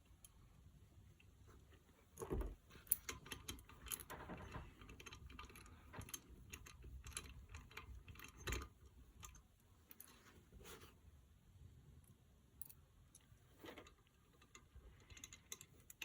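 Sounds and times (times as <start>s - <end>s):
metal parts clinking and tapping: 2.2s - 10.2s, 12.6s - 16.0s.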